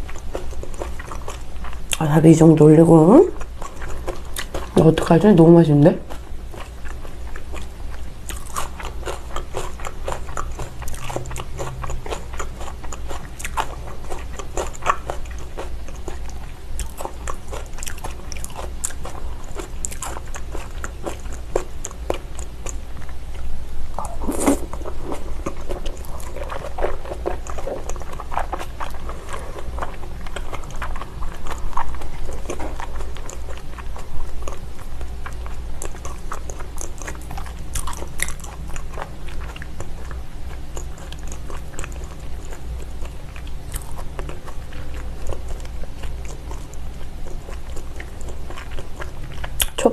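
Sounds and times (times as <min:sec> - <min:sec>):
wet chewing and mouth clicks: 0:03.4 - 0:04.9, 0:06.1 - 0:23.4, 0:24.0 - 0:49.8.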